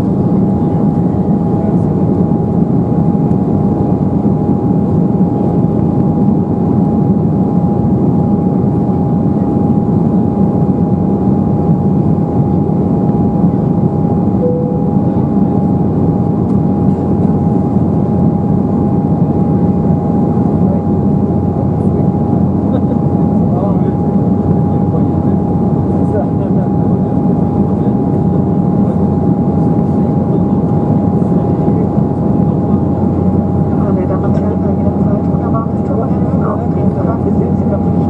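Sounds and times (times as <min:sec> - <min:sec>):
airliner engine rumble: 0:00.0 - 0:38.0
thin steady whine: 0:14.4 - 0:19.7.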